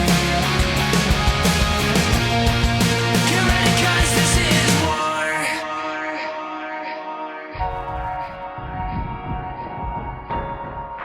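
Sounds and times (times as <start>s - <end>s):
rock music: 0.0s - 6.8s.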